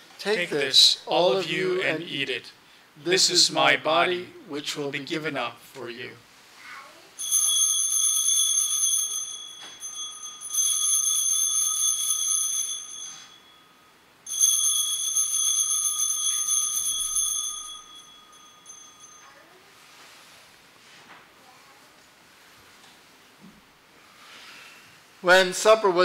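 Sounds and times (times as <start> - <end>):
altar bells ringing: 7.2 - 19.6.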